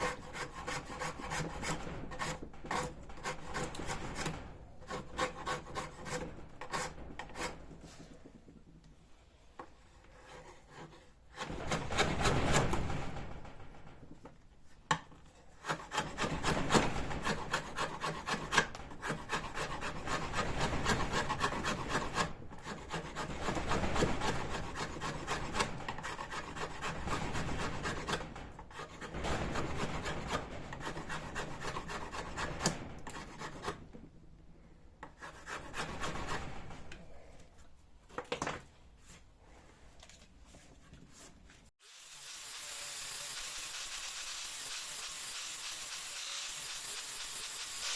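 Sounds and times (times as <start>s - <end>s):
wood rasping: 0.0s - 8.1s, 9.9s - 12.5s, 15.4s - 33.9s, 35.0s - 36.5s.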